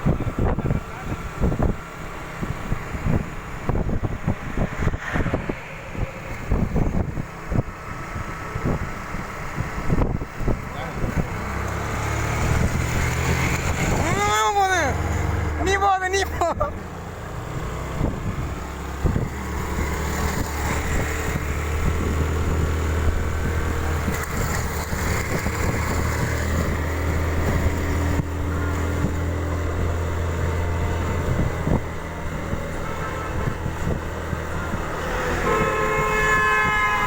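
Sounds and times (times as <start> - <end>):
motorcycle riding on road: 0.0 - 37.0
vehicle horn: 32.7 - 33.9, 35.0 - 37.0.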